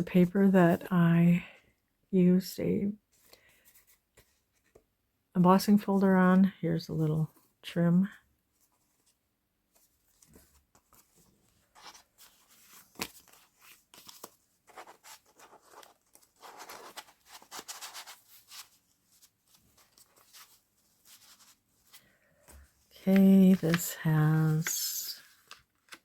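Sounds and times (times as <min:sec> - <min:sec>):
paper pages rustling: 0:08.6 - 0:26.0.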